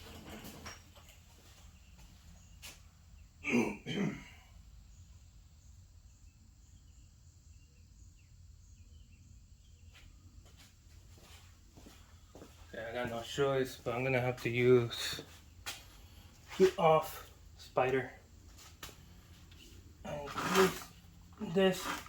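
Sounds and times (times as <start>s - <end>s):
man coughing: 3.4s - 4.5s.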